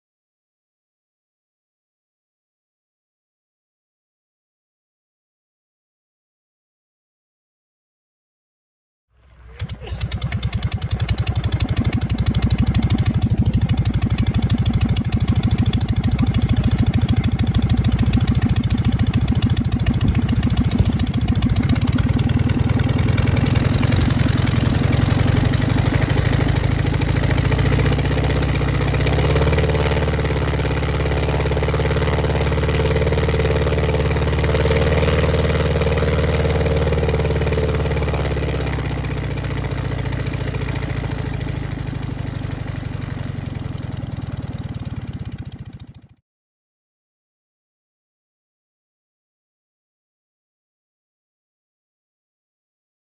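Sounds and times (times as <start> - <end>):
aircraft engine running rough: 9.2 - 46.1.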